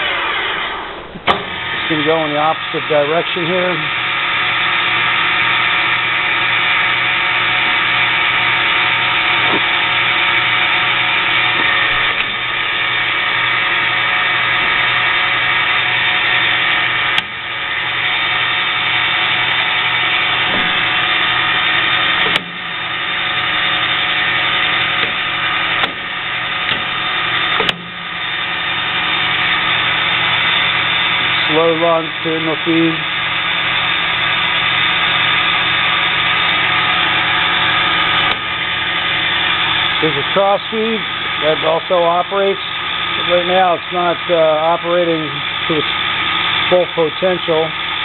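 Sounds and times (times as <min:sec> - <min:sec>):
lathe geared whine and hum: 0:00.0 - 0:48.0.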